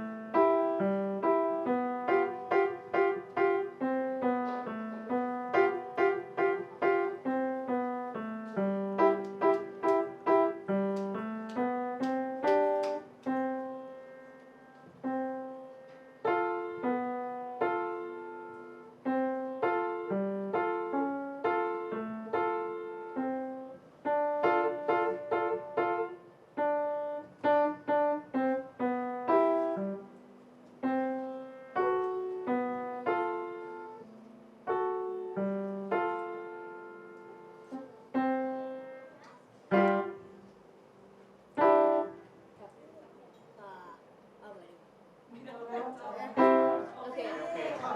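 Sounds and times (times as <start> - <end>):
piano playing melody over chords: 0.0 - 40.5, 41.5 - 42.3.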